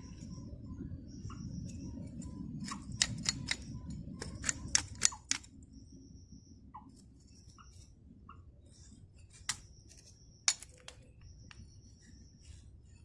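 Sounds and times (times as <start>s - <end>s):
birds chirping: 0.0s - 13.0s
steady low rumble: 0.0s - 13.0s
sharp clicks: 2.6s - 5.5s.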